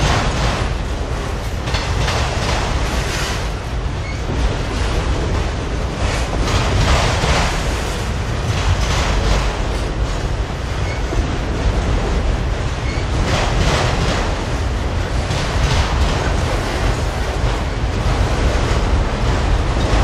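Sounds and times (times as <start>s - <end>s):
steel wheels rumbling on rail: 0.0s - 20.0s
wheels clattering over rail joints: 0.0s - 20.0s.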